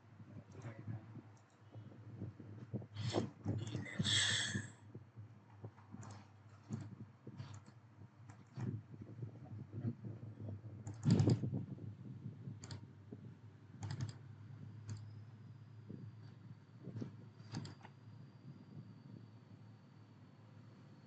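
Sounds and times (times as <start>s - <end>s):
low steady hum: 0.0s - 21.0s
keyboard key clicks: 13.8s - 14.2s.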